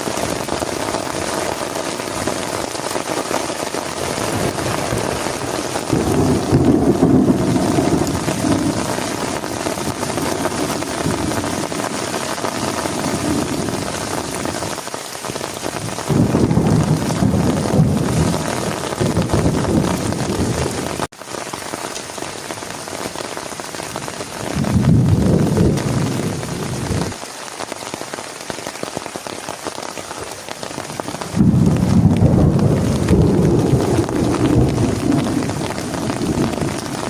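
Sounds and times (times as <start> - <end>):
heavy rain falling: 0.0 - 37.0
low rolling thunder: 3.9 - 14.5, 15.8 - 21.1, 24.5 - 27.1, 31.1 - 37.0.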